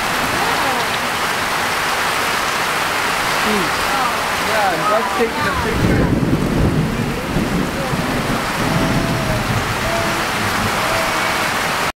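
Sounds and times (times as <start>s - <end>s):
heavy rain falling: 0.0s - 12.0s
low rumble of thunder: 5.6s - 11.0s.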